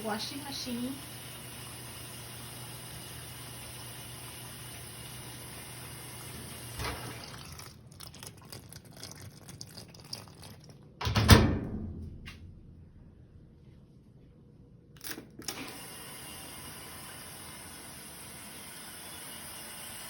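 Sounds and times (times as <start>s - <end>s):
water running from hose: 0.0s - 10.4s
low hum: 11.6s - 14.8s.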